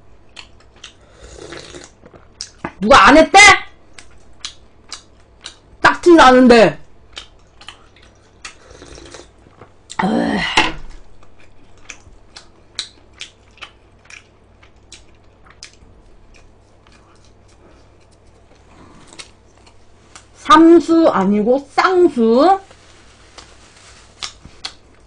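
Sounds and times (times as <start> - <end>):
wet chewing mouth clicks: 4.0 - 5.6, 7.1 - 10.0, 11.3 - 20.3.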